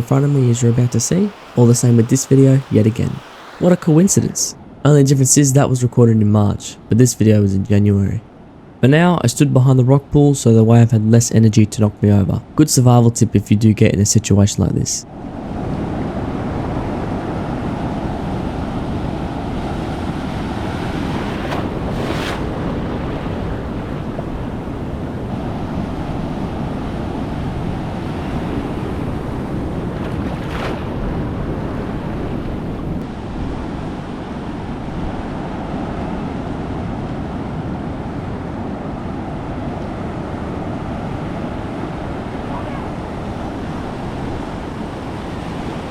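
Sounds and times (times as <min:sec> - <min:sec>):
sharp water splashes: 0:00.0 - 0:04.5
surf breaking on rocks: 0:00.0 - 0:04.5, 0:19.7 - 0:23.9
wind buffeting microphone: 0:00.0 - 0:04.5, 0:15.1 - 0:45.9.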